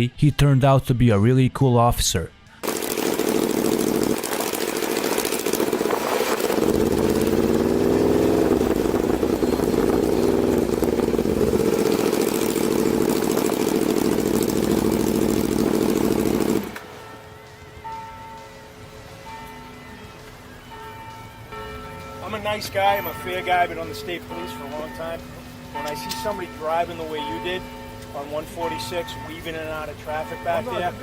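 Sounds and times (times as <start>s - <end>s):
motorcycle engine running: 2.6s - 17.0s
constant hiss: 2.6s - 31.0s.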